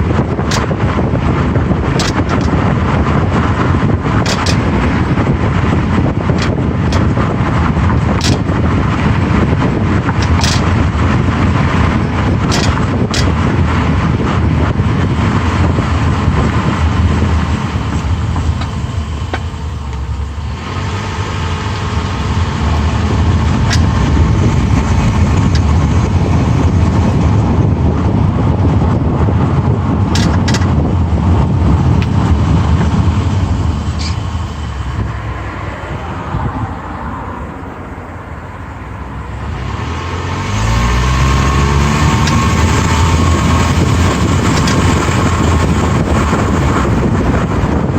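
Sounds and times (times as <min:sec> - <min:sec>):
car road and engine noise: 0:00.0 - 0:47.9.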